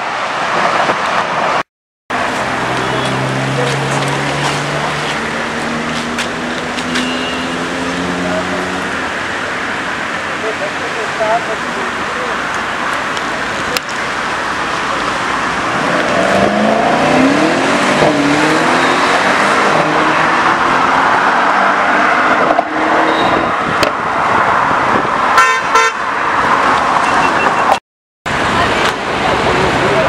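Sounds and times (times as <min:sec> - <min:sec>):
traffic noise: 0:00.0 - 0:30.0
car horn toots: 0:06.8 - 0:07.6, 0:23.0 - 0:23.6, 0:25.4 - 0:26.1
car engine accelerating: 0:13.2 - 0:23.1.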